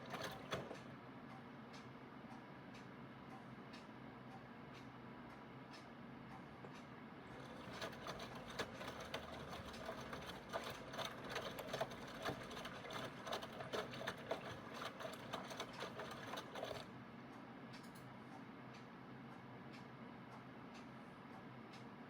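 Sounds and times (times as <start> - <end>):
washing machine rattling clatter: 0.0 - 0.8, 7.3 - 16.9
washing machine motor hum: 0.0 - 1.2, 7.1 - 17.1.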